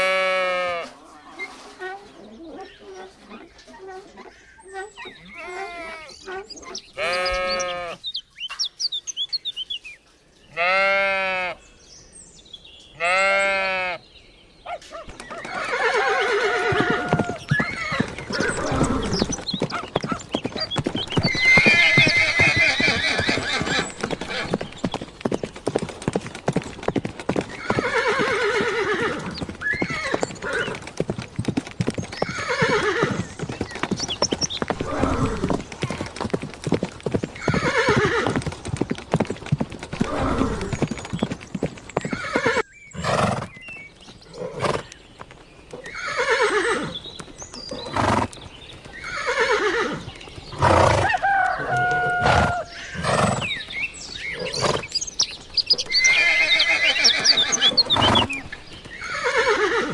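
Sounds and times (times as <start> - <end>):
horses whinnying: 0.0 - 1.7, 4.2 - 8.0, 15.1 - 25.0, 27.4 - 31.1, 31.8 - 36.3, 37.3 - 38.8, 39.8 - 43.5, 44.3 - 45.0, 45.7 - 47.0, 47.7 - 53.6, 54.2 - 54.9, 55.6 - 59.9
hooves clopping on hard ground: 14.7 - 59.9.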